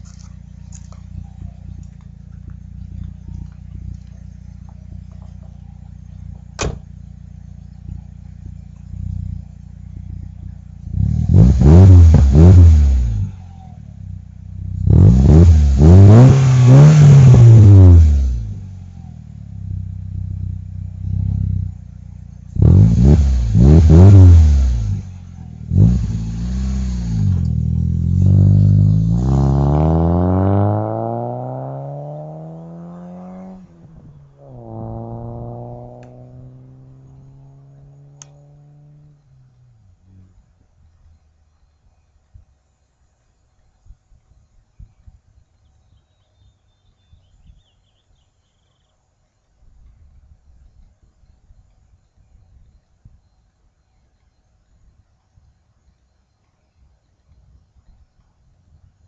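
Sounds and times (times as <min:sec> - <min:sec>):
car engine idling and revving: 0:00.0 - 0:43.6.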